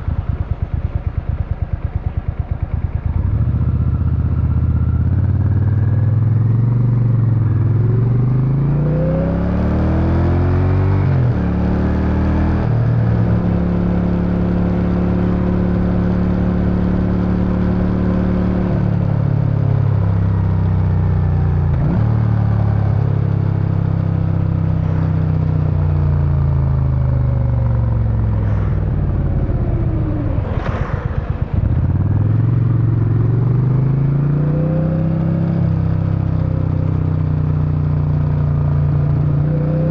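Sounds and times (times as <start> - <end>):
motorcycle engine accelerating: 0.0 - 39.9
exhaust burble on overrun: 24.8 - 34.2.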